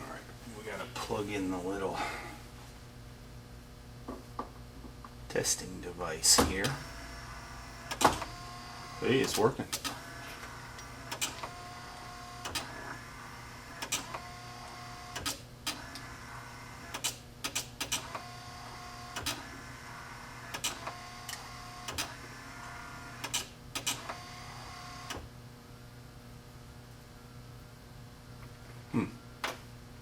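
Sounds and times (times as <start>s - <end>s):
sharp relay clicks: 16.9s - 18.2s, 23.2s - 24.1s.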